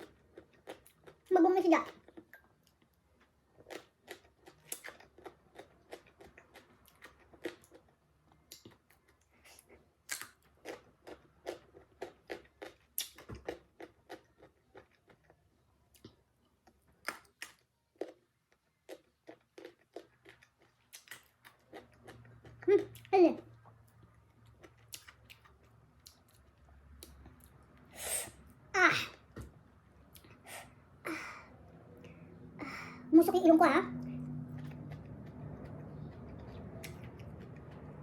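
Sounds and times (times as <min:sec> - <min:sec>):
chewing crisp mango: 0:00.0 - 0:29.3, 0:34.2 - 0:38.0.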